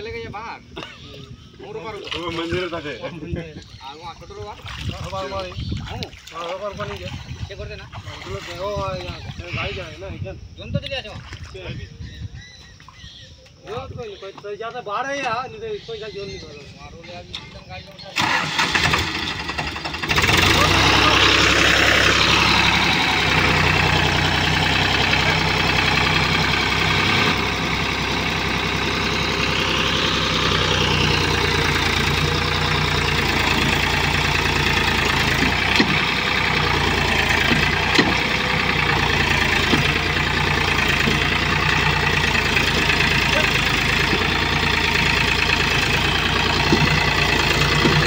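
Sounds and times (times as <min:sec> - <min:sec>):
tractor diesel engine running: 0:17.3 - 0:48.0.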